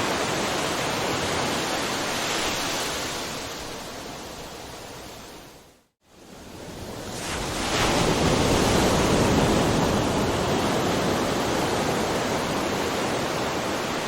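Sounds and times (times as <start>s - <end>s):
ocean wave washing in: 6.7s - 14.0s.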